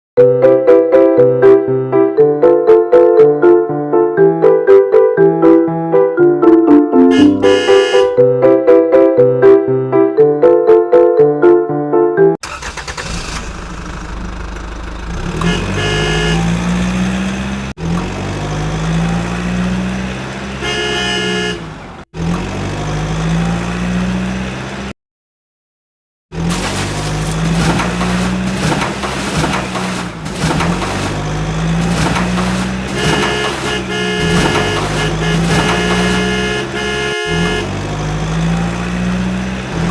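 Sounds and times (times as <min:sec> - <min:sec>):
horn honking: 0:07.0 - 0:08.2, 0:15.3 - 0:16.8, 0:20.5 - 0:22.0, 0:30.9 - 0:37.9
vehicle engine revving: 0:12.4 - 0:24.9, 0:26.3 - 0:39.9.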